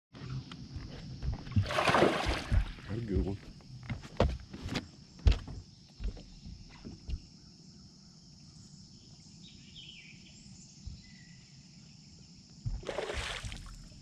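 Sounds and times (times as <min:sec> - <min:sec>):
high insect drone: 0:00.2 - 0:14.0
faint bird chirps: 0:05.7 - 0:12.4.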